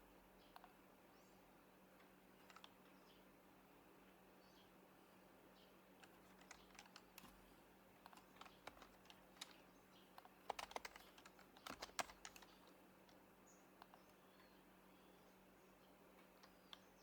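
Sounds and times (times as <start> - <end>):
soft muted keyboard typing: 2.0 - 3.0, 6.0 - 14.6, 16.1 - 17.0.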